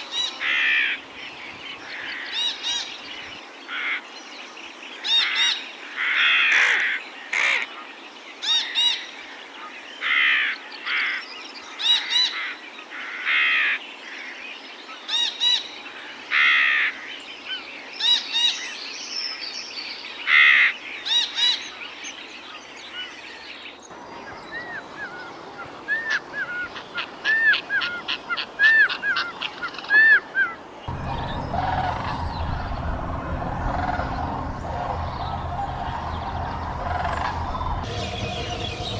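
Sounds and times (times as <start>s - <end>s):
birds calling harshly: 30.9s - 38.9s
high whistled bird notes: 30.9s - 38.9s.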